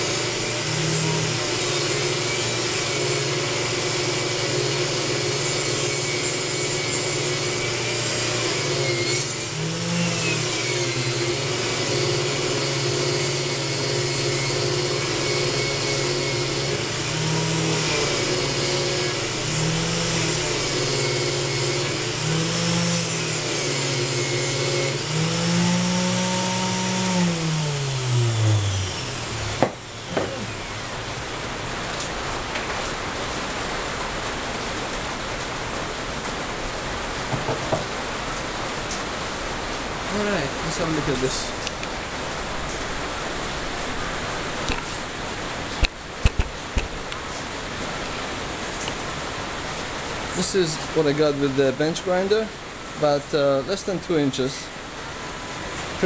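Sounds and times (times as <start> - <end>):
angle grinder wire wheel on metal: 0.0 - 30.9
grinder winding down: 0.0 - 31.1.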